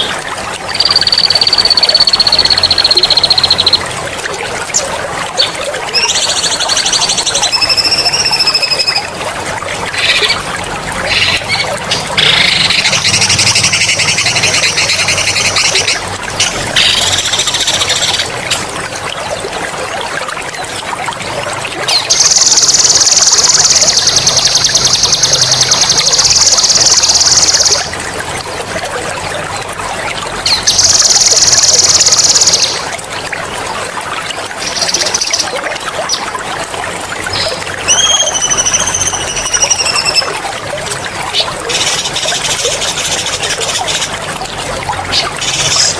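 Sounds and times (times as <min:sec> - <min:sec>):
water trickling: 0:00.0 - 0:45.9
songbird high rolling trills: 0:00.8 - 0:03.8.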